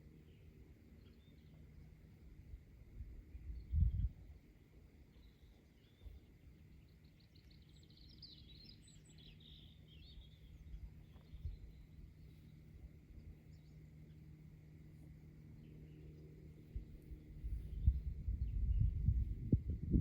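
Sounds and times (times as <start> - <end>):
low outdoor rumble: 0.0 - 20.0
songbird trilling and warbling: 5.1 - 14.4.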